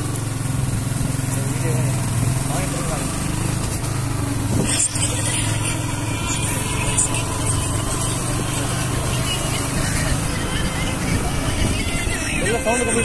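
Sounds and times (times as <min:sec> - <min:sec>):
motorcycle engine running: 0:00.0 - 0:13.0
wind noise on microphone: 0:04.5 - 0:04.8, 0:10.3 - 0:13.0.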